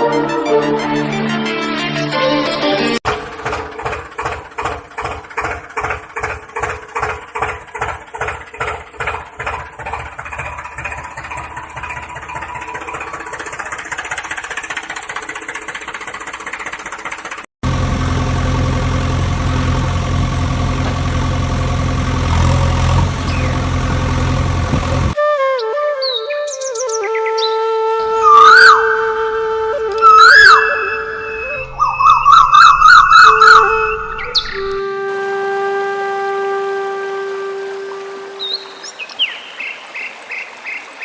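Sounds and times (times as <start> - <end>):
deep engine drone: 3.0 - 25.2, 27.7 - 38.8
engine chugging: 3.0 - 25.2, 28.1 - 38.7.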